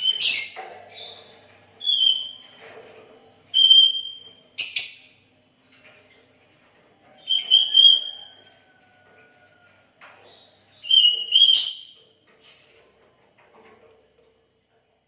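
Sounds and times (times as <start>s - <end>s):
bird whistled song: 0.0s - 1.1s, 1.8s - 2.5s, 3.5s - 5.1s, 7.2s - 8.4s, 10.4s - 12.0s.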